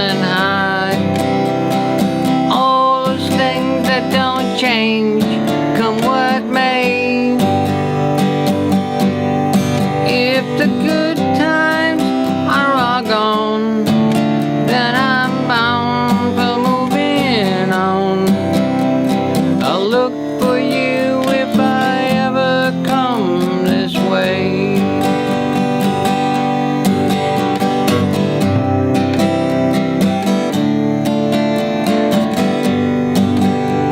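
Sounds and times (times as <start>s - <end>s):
acoustic guitar strumming: 0.0s - 33.9s
sliding lead melody: 24.8s - 33.9s.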